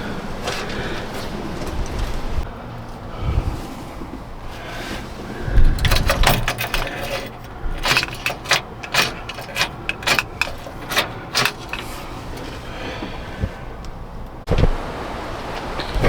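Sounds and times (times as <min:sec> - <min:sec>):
small metal objects clinking: 0:05.8 - 0:12.5.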